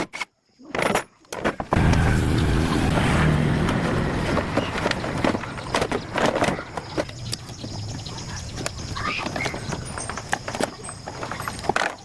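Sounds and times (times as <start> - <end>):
engine running: 1.8 - 8.0.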